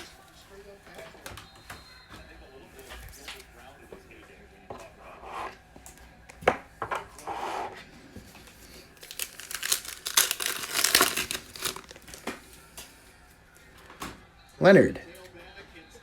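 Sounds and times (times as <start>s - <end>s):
foil wrapper tearing and crinkling: 8.4s - 12.4s.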